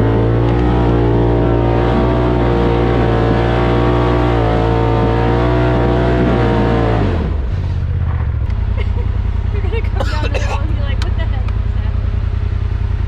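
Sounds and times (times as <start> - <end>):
utility vehicle engine at high revs: 0.0 - 13.0.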